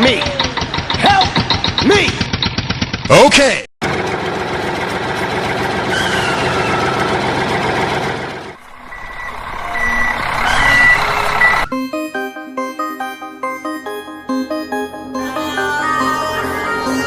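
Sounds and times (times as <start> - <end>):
heavy vehicle engine running: 0.1 - 3.2, 3.8 - 11.7
reversing beeper beeps: 8.6 - 11.8
music: 11.7 - 17.0.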